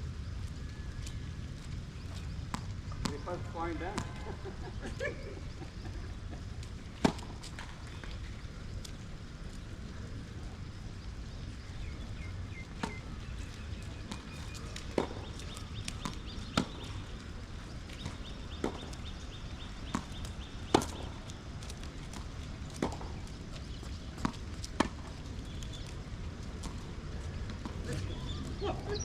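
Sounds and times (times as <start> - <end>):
low background noise: 0.0 - 29.0
rackets hitting tennis ball: 2.5 - 4.6, 14.0 - 17.2, 17.9 - 23.3
tennis ball bouncing: 2.5 - 4.6, 7.0 - 7.8, 14.0 - 17.2, 17.9 - 25.2.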